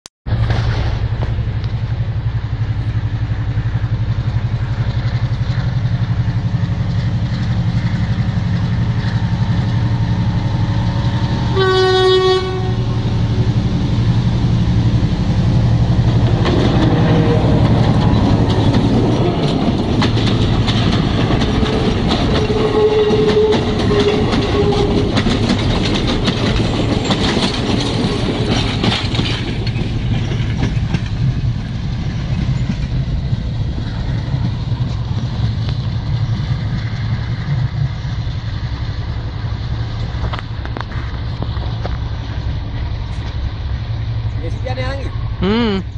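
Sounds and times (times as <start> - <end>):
diesel locomotive engine droning: 0.3 - 45.9
train horn: 11.5 - 13.0, 22.3 - 25.2
wheels clattering over rails: 15.6 - 44.6.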